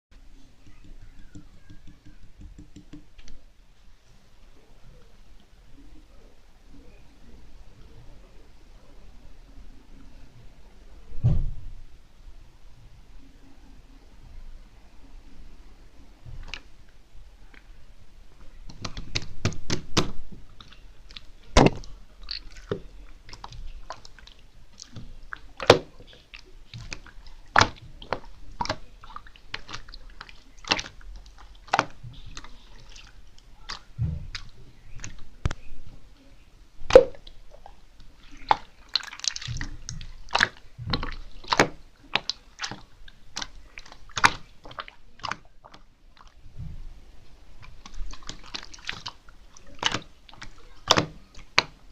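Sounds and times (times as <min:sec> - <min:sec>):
slime squelching and popping: 0:18.6 - 0:35.7, 0:36.8 - 0:46.4, 0:47.6 - 0:51.9.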